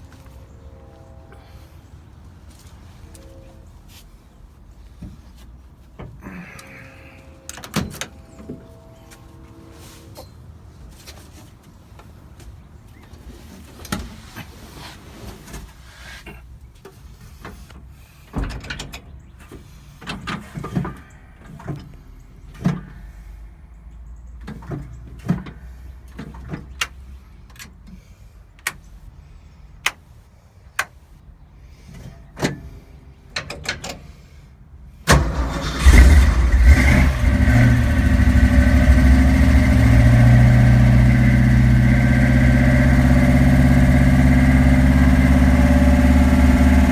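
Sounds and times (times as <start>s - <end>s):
car engine starting and idling: 35.0s - 46.9s.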